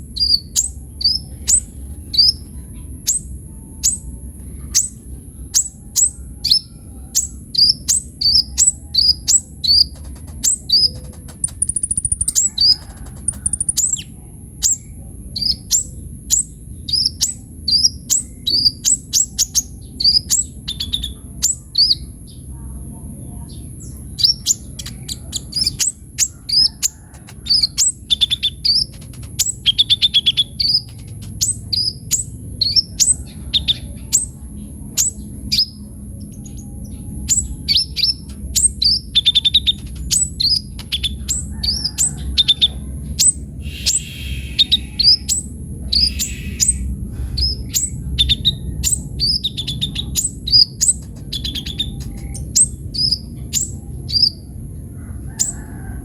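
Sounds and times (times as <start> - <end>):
sunbird singing sharp chirps: 5.6 - 22.1, 43.2 - 54.5.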